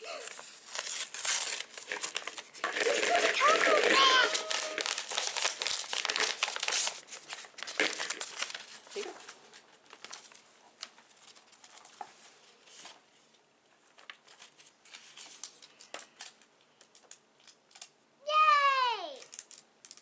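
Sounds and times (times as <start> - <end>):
paper envelope rustling: 0.0 - 13.1, 13.8 - 17.9
paper tearing: 0.1 - 9.2.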